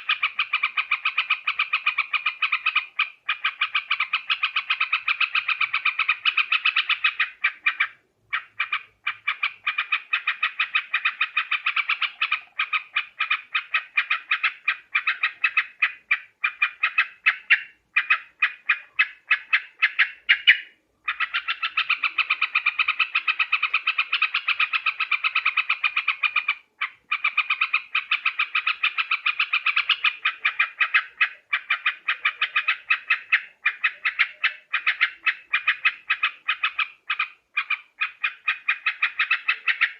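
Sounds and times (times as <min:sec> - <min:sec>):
bird chattering call: 0:00.0 - 0:39.9.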